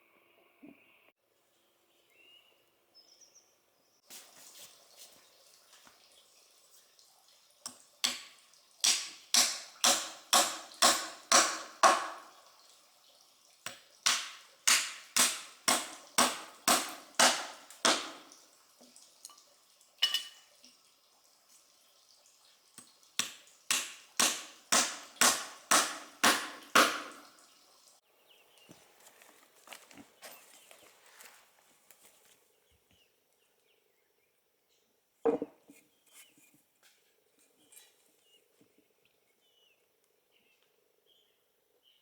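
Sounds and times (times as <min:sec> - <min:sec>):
hand tool striking hard: 0:08.8 - 0:12.3, 0:14.0 - 0:18.2, 0:23.2 - 0:27.2.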